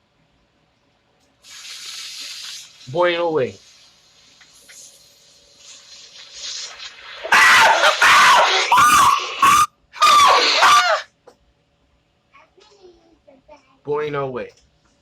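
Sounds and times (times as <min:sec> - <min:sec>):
faint hiss: 0:01.2 - 0:07.0
man screaming: 0:07.3 - 0:11.1.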